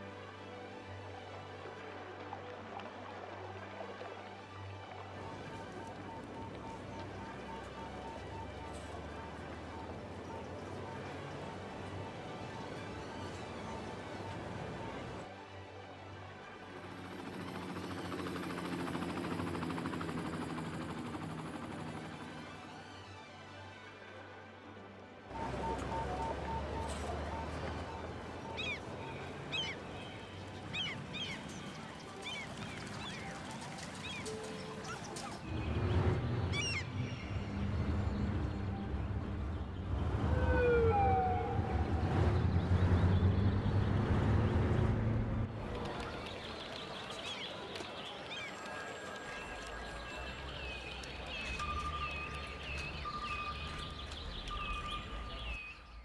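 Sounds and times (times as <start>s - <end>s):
motor vehicle passing: 25.3s - 46.6s.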